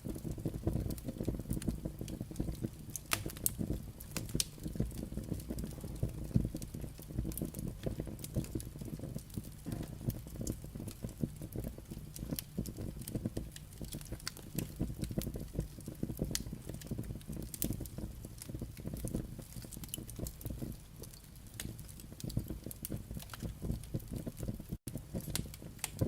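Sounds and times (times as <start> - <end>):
low fire rumble: 0.0 - 26.0
wood fire crackling and popping: 0.0 - 26.0.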